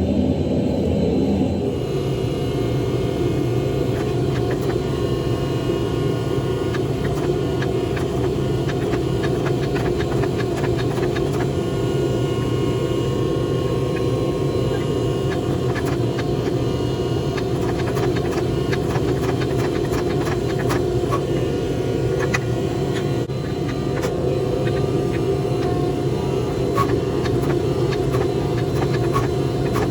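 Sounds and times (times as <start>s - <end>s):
forge running: 0.0s - 29.9s.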